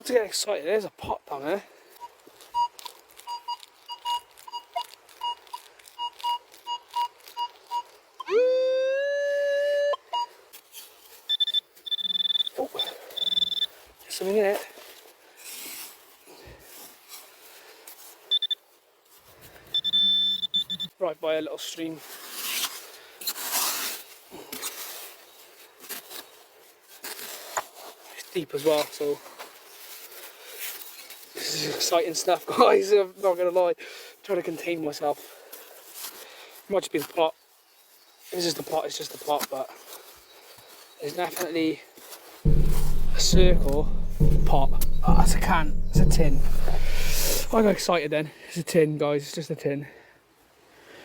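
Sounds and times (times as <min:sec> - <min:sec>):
metal detector short beeps: 0:02.5 - 0:08.4, 0:11.3 - 0:13.7, 0:18.3 - 0:18.6, 0:19.8 - 0:20.9, 0:42.5 - 0:47.9
metal detector rising tone: 0:42.5 - 0:47.9.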